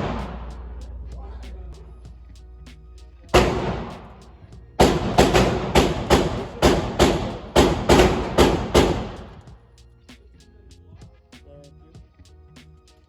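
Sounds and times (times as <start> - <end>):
gunshots echoing indoors: 0.0 - 0.5, 3.4 - 4.2, 4.8 - 9.5.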